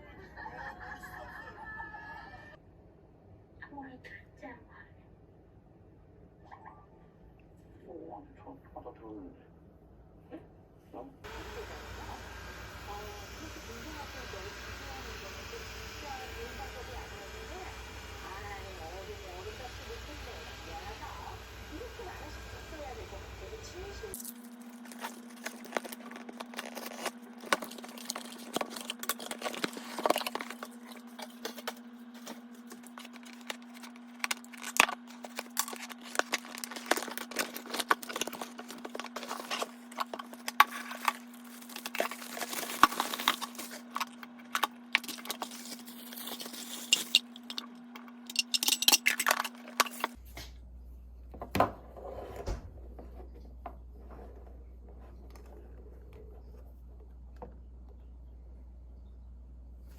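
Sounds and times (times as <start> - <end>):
handling clicks and crinkling: 24.1 - 50.2.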